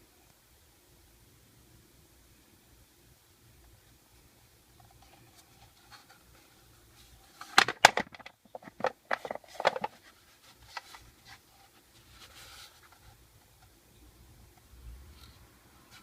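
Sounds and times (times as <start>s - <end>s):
sharp clicks and knocks: 7.4s - 10.0s.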